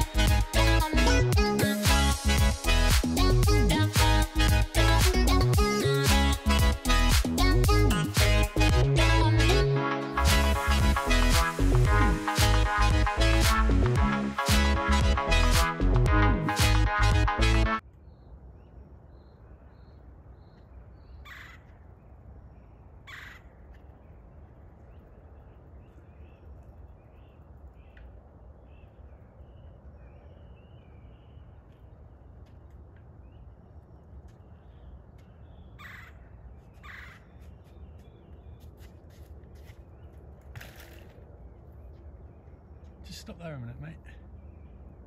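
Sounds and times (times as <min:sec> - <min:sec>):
small birds chirping: 0:17.9 - 0:45.0
large bird harsh calls: 0:21.1 - 0:21.8, 0:23.0 - 0:23.6, 0:35.6 - 0:37.3.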